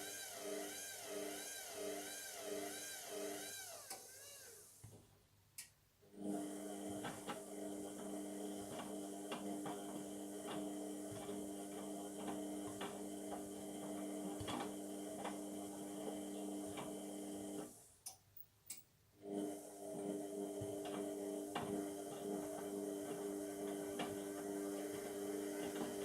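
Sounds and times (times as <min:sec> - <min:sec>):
washing machine drum humming: 0:19.9 - 0:26.0.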